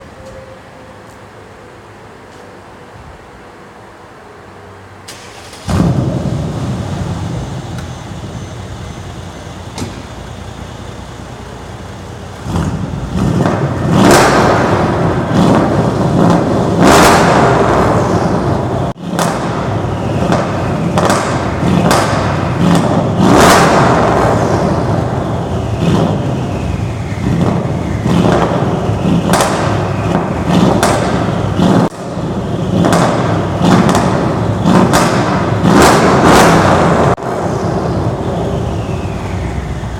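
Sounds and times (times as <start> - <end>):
car engine revving: 5.1 - 39.9
exhaust crackling and popping: 11.7 - 39.9.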